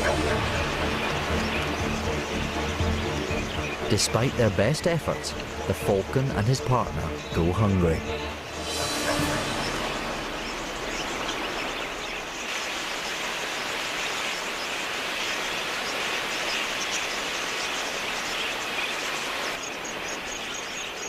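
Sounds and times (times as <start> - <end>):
budgerigars chattering: 0.0 - 21.0.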